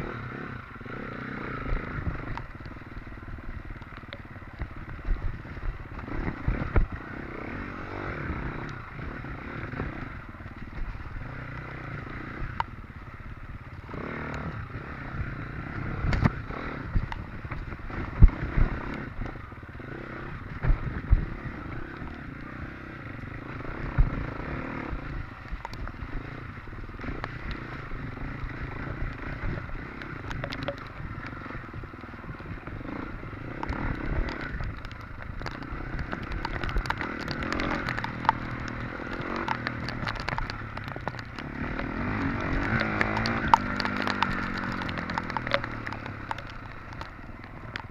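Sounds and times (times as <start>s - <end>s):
bike knocks and clatter over bumps: 15.1s - 19.4s, 24.9s - 47.9s
dirt bike engine under load: 21.7s - 47.9s.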